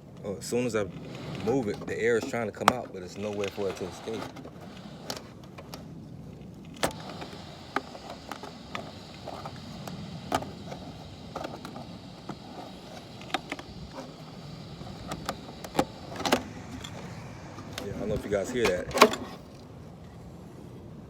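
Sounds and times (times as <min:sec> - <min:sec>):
steady low rumble: 0:08.5 - 0:21.0.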